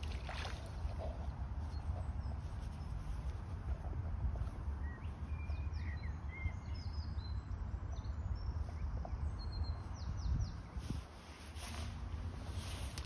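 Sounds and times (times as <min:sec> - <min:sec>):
low outdoor rumble: 0:00.0 - 0:13.0
small birds chirping: 0:00.3 - 0:13.0.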